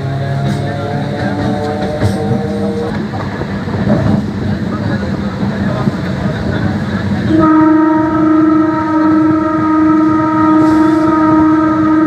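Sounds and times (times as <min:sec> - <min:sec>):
train rumbling: 0:00.0 - 0:12.0
train horn blast: 0:07.2 - 0:12.0.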